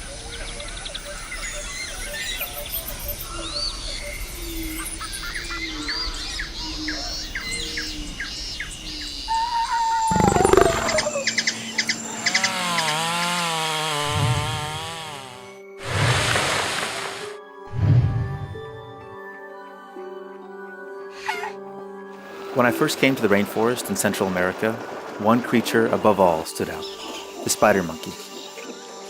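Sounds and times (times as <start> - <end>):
birds chirping and whistling: 0.2 - 13.1
falling tone: 10.1 - 11.3.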